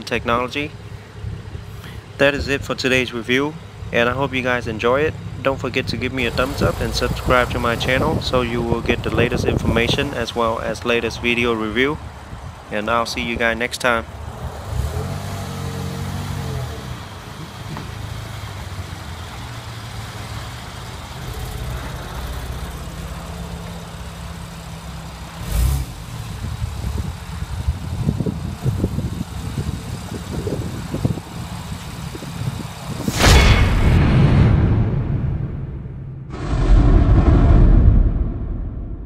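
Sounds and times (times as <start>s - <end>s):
car engine droning: 0.0s - 12.8s, 13.6s - 33.9s
engine revving burst: 25.4s - 26.2s, 32.9s - 39.0s.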